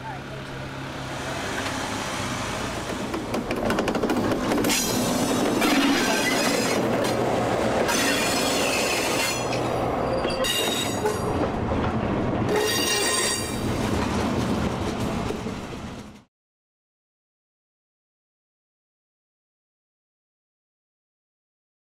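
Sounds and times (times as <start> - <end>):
railcars rumbling past: 0.0 - 16.3
steel wheels squealing on rails: 4.5 - 6.9, 7.9 - 11.4, 12.5 - 13.6.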